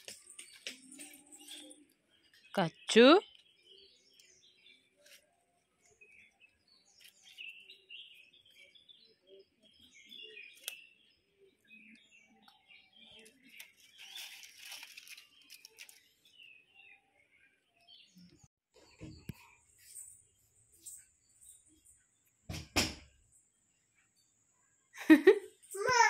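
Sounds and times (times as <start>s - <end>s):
faint birds chirping: 0.0s - 26.0s
brief rustle: 13.5s - 16.0s.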